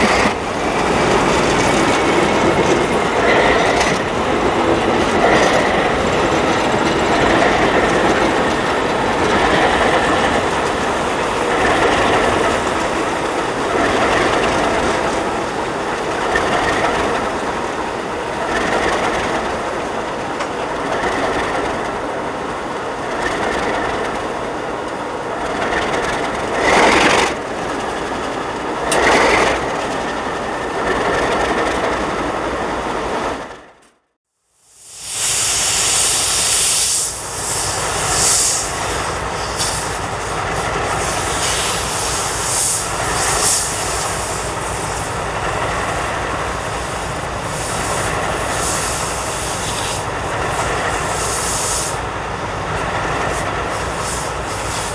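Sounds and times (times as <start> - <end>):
wheels clicking over rail joints: 0.0 - 32.0, 35.2 - 54.9
freight train rolling past: 0.0 - 33.8, 34.6 - 54.9.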